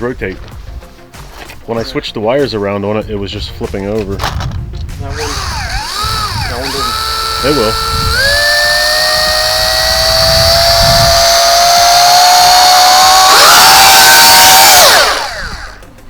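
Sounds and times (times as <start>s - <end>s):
drone motors whining: 5.1s - 16.0s.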